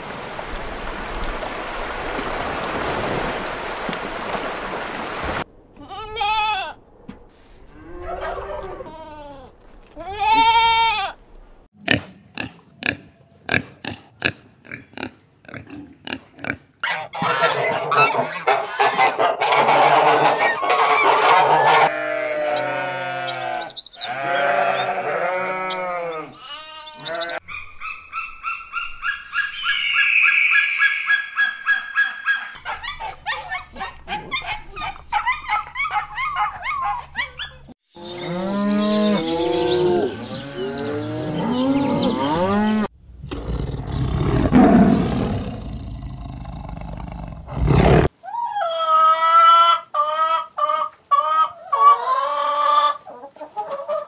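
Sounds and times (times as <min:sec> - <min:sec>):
chickens calling: 0:07.8 - 0:09.0, 0:16.4 - 0:42.9, 0:48.2 - 0:54.0
farm animal calls: 0:07.8 - 0:09.4, 0:11.9 - 0:45.0
sheep bleating: 0:08.8 - 0:11.2, 0:21.7 - 0:27.4.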